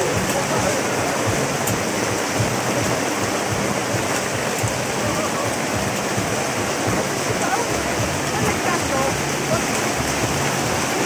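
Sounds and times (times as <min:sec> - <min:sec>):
heavy rain and hail: 0:00.0 - 0:11.0.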